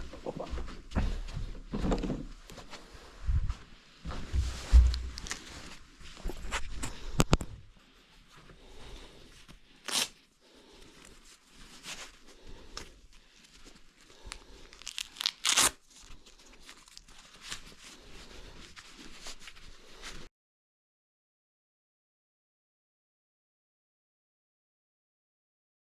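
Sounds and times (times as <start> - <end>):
building material tearing and scraping: 9.9 - 10.2, 14.8 - 18.5.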